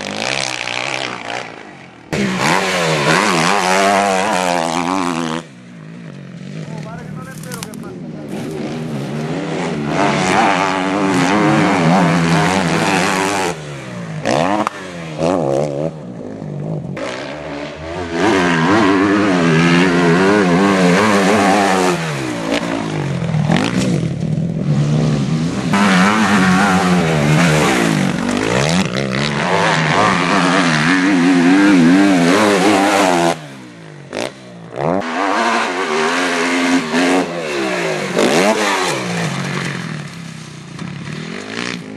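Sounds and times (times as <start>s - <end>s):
dirt bike engines revving: 0.0s - 41.9s.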